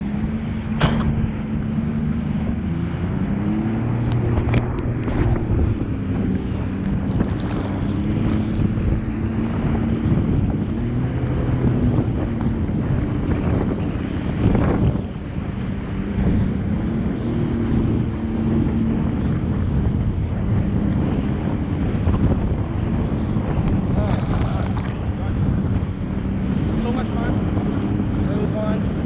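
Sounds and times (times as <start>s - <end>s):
jet ski engine running: 0.0s - 29.0s
wind buffeting microphone: 0.0s - 29.0s
sharp knocks: 0.8s - 1.4s.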